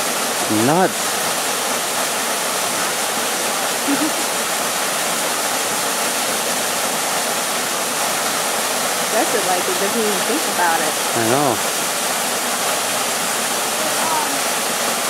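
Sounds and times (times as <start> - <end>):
waterfall rushing: 0.0 - 15.0
faint voice: 11.2 - 11.6, 13.8 - 14.4.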